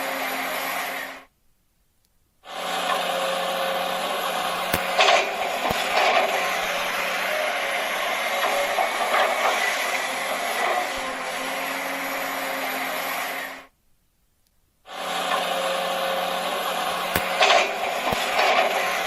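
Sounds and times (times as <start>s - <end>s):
small motor whirring: 0.0s - 1.3s, 2.5s - 13.7s, 14.9s - 19.0s
sharp clicks: 4.3s - 10.0s, 16.8s - 19.0s.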